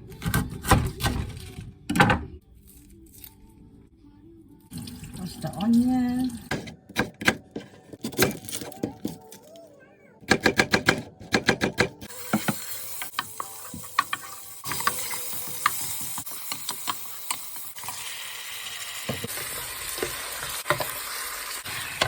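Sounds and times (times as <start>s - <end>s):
onions sizzling in hot oil: 12.1s - 22.0s.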